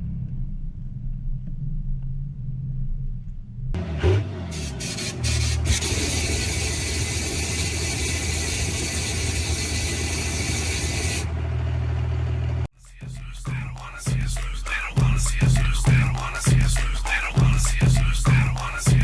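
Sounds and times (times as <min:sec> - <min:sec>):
diesel truck engine revving: 0:03.7 - 0:12.7
loud steady hiss: 0:04.8 - 0:11.2.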